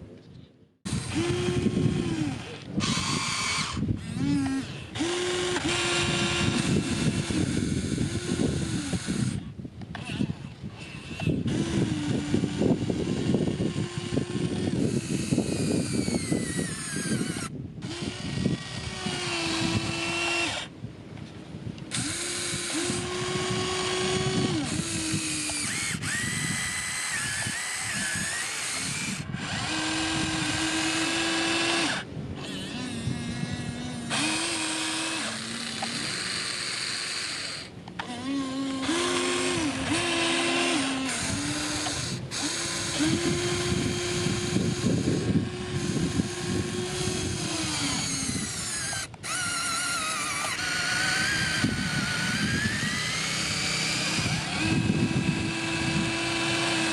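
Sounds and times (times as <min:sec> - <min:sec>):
machine motor running: 0:21.9 - 0:56.9.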